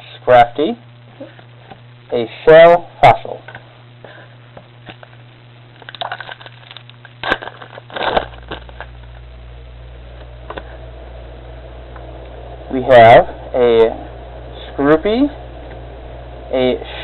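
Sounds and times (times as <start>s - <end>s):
foil wrapper crinkling and tearing: 5.8s - 9.1s.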